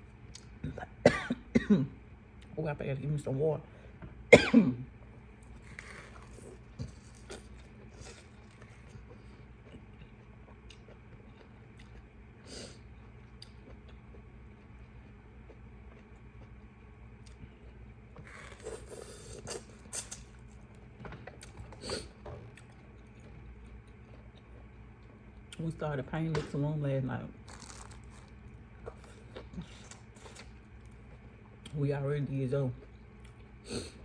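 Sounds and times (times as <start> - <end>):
food handled and chewed: 5.3 - 25.7, 27.4 - 31.8.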